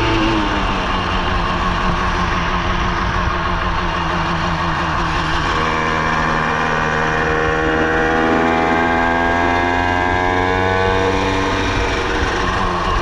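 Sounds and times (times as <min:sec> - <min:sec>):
two-stroke scooter engine running: 0:00.0 - 0:13.0.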